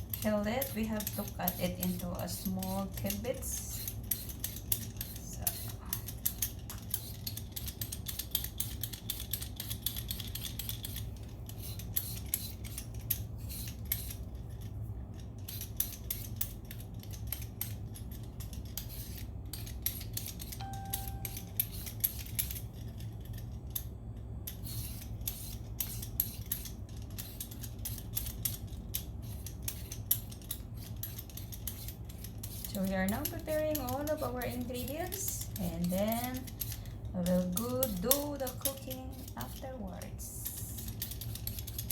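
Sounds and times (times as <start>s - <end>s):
low steady hum: 0.0s - 41.9s
knife cutting vegetables: 24.5s - 41.9s.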